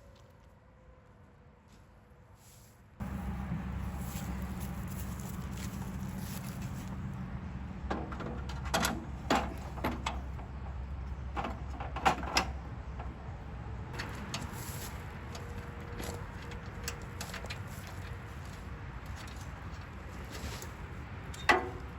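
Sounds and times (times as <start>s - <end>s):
low steady hum: 3.0s - 18.6s
tools and metal parts clinking: 21.3s - 21.8s.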